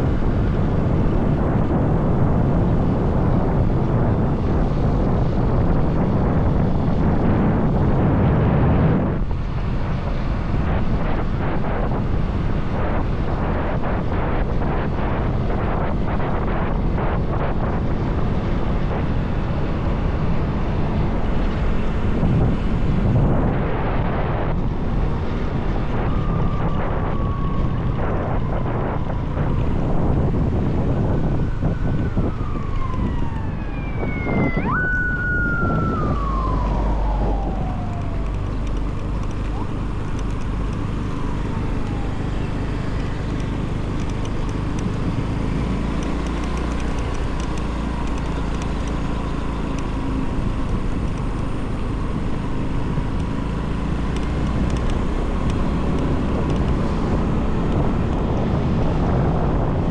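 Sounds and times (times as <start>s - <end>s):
motorbike engine rumble: 0.0s - 59.9s
wind buffeting microphone: 0.0s - 59.9s
tones sliding downward in pitch: 32.4s - 38.6s.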